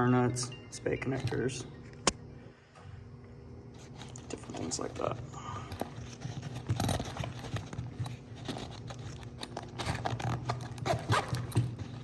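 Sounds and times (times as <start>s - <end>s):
steady low hum: 0.0s - 12.0s
hardware clicking and rattling: 3.8s - 12.0s.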